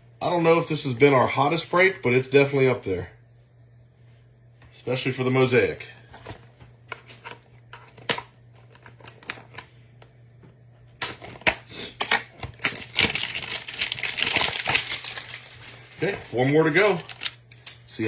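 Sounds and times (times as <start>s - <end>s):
plastic wrapping crinkling and tearing: 12.1s - 17.9s.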